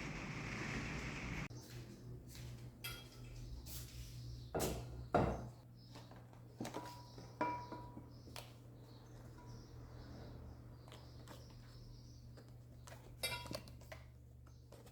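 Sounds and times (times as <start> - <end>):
kitchenware knocking and clinking: 4.6 - 5.6, 6.8 - 8.1.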